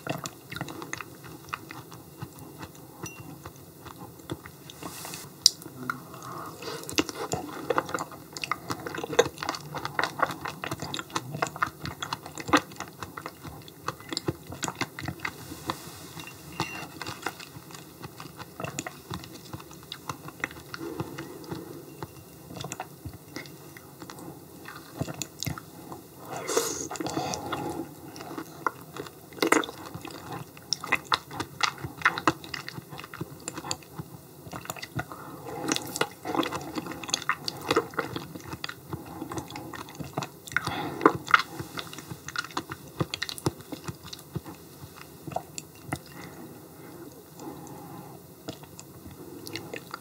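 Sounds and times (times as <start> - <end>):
person chewing with mouth clicks: 0.0 - 50.0.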